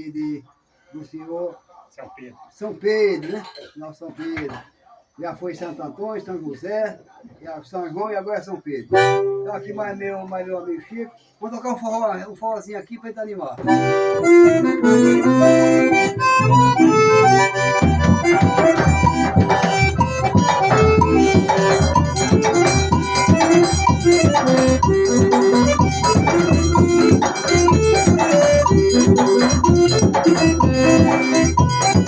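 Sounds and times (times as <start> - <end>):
accordion melody: 8.9 - 10.3, 13.6 - 32.0
drum and percussion beat: 17.6 - 32.0.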